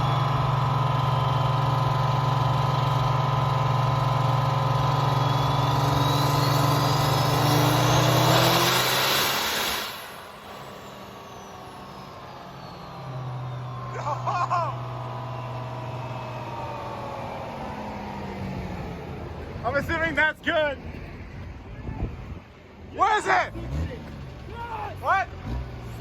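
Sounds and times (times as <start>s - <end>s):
turbo whine climbing in pitch: 0.0s - 19.4s
heavy diesel engine drone: 0.0s - 19.9s.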